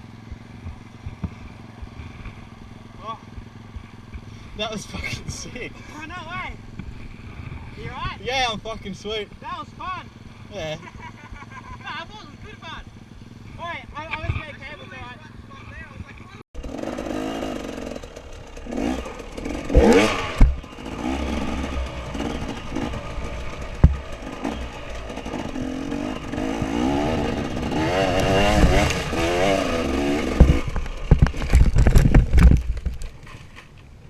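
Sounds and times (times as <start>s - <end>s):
motorcycle engine revving: 0.0s - 33.5s
knocks and thumps: 23.7s - 24.2s, 30.2s - 33.7s.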